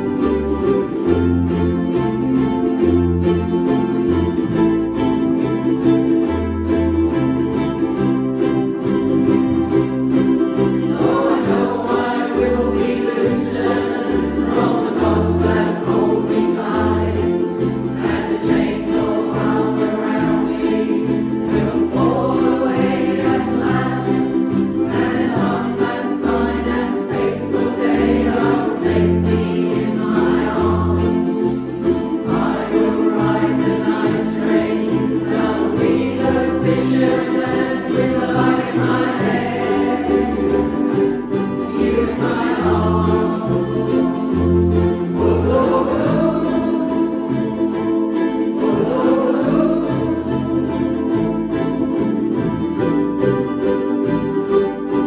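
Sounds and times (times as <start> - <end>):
bass line: 0.0 - 48.2
strummed strings: 0.0 - 55.0
voices singing together: 9.6 - 51.8.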